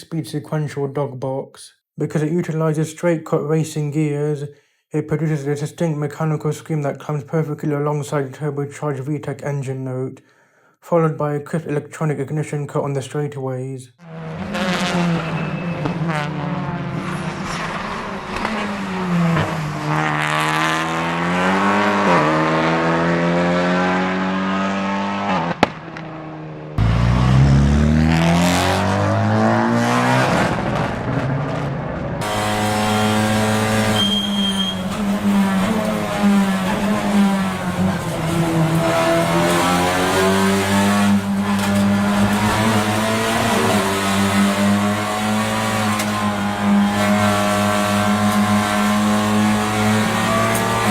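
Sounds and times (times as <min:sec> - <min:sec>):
racing car engine revving: 0:14.1 - 0:50.9.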